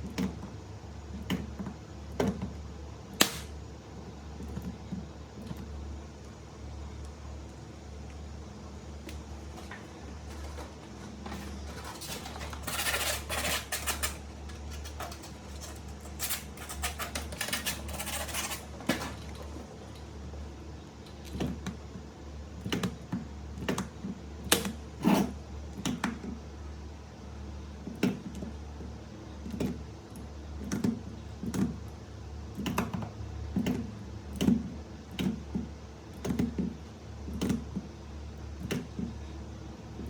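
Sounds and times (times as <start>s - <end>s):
steady low hum: 0.0s - 27.9s
single sharp clicks: 3.2s - 3.6s.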